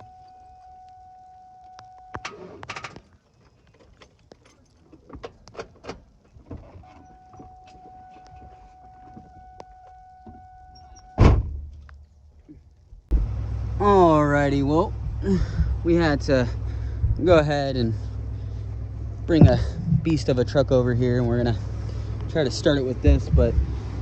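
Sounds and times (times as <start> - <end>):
handling clicks and rattles: 0.0 - 11.0
loud thump: 11.2 - 11.7, 19.4 - 20.1.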